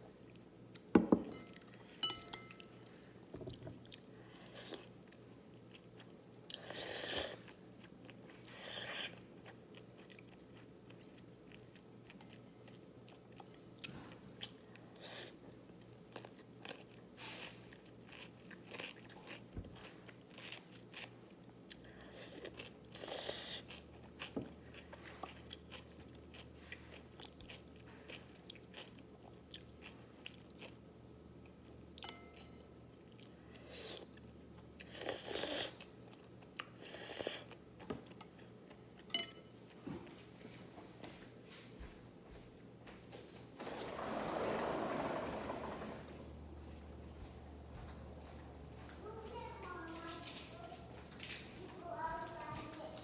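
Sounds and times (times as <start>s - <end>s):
crunching and chewing: 3.8s - 32.5s.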